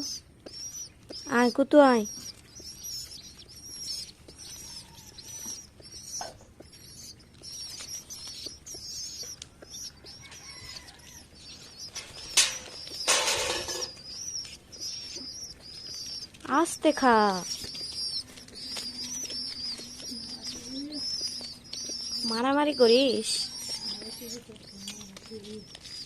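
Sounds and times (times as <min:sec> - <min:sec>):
birds chirping: 0:00.0 - 0:26.0
light taps: 0:17.4 - 0:26.0.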